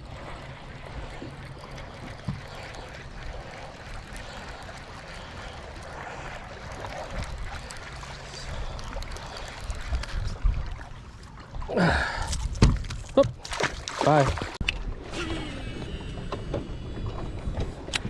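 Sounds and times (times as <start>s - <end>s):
water lapping against hull: 0.0s - 18.0s
low hum: 14.6s - 18.0s.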